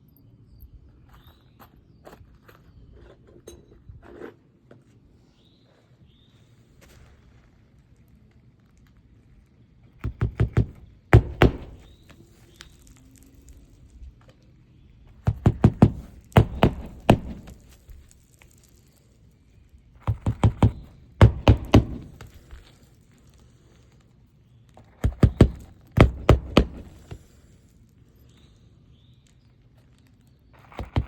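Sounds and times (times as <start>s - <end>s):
hammer driving nails: 10.0s - 11.9s, 15.2s - 17.8s, 20.0s - 22.6s, 25.0s - 27.3s, 30.6s - 31.0s.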